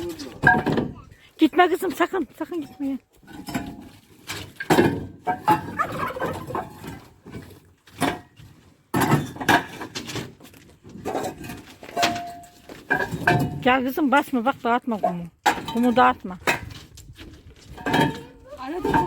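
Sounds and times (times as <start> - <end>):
turkeys gobbling: 5.4 - 6.8.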